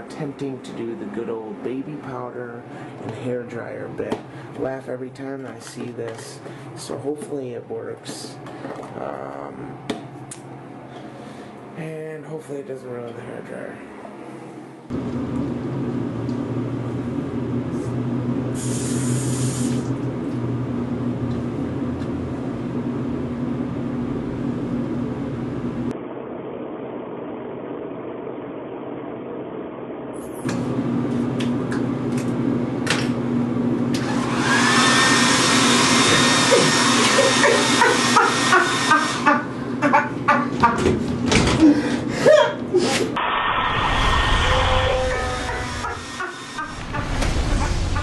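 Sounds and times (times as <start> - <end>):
hair dryer whirring: 33.8 - 40.0, 45.1 - 46.9
bright burst of choppy noise: 43.2 - 48.0.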